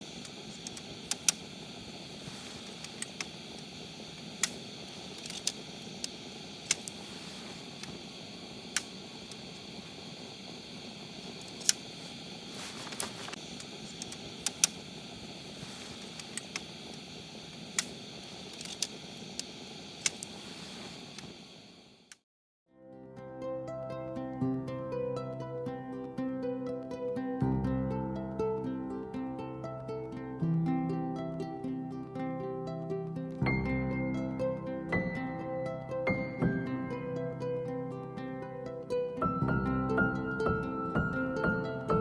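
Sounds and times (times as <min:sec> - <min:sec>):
campfire crackling: 0:00.0 - 0:22.1
sharp pops of fire: 0:00.0 - 0:22.2.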